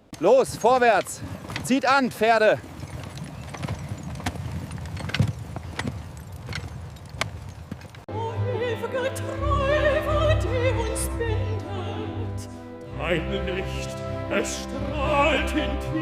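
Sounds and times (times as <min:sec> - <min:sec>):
horse hooves clip-clopping: 0:00.0 - 0:08.1
operatic singing with vibrato: 0:08.1 - 0:16.0
orchestral chords: 0:08.1 - 0:16.0.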